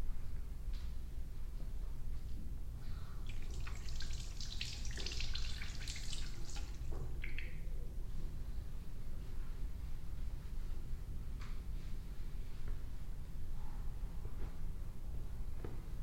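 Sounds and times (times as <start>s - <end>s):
water trickling and dripping: 3.2s - 7.7s.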